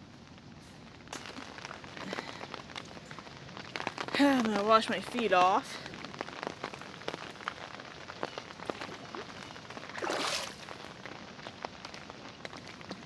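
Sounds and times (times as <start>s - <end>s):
water dripping and splattering: 0.2s - 13.0s
gush of water: 4.1s - 13.0s.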